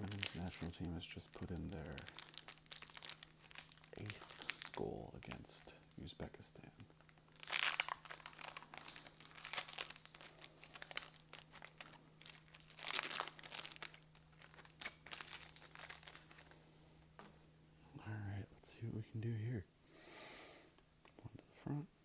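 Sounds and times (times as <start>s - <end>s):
wrapper crinkling and tearing: 0.0s - 6.2s, 7.0s - 17.2s
faint electrical hum: 0.0s - 22.0s.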